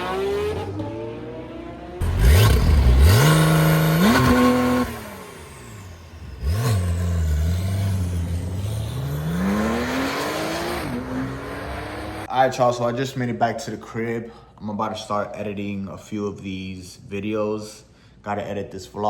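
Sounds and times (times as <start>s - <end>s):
car engine revving: 0.0s - 12.3s.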